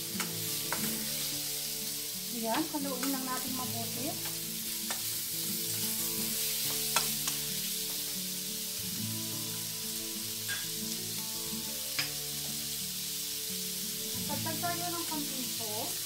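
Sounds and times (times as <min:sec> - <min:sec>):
shrimp sizzling in a wok: 0:00.0 - 0:16.0
soft background music: 0:00.0 - 0:16.0
spatula tapping against wok: 0:00.2 - 0:01.0, 0:02.5 - 0:03.6, 0:04.2 - 0:05.1, 0:06.6 - 0:08.2, 0:12.0 - 0:12.2.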